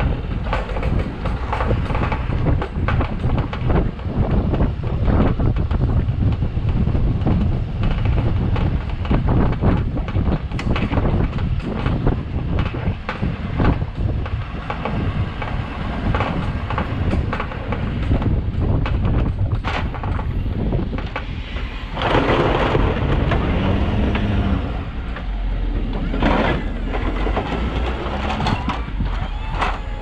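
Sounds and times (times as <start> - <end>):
truck engine low rumble: 0.0 - 30.0
plow scraping snow: 21.3 - 28.7.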